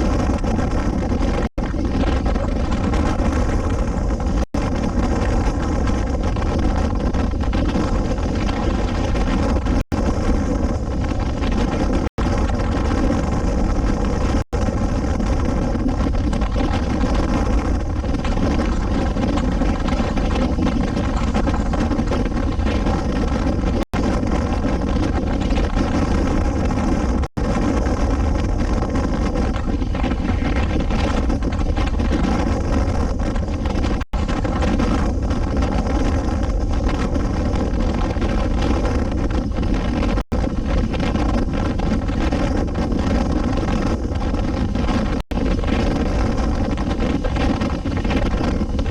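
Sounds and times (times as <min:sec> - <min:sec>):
motorcycle engine running: 0:00.0 - 0:48.9
wind noise on microphone: 0:00.0 - 0:48.9.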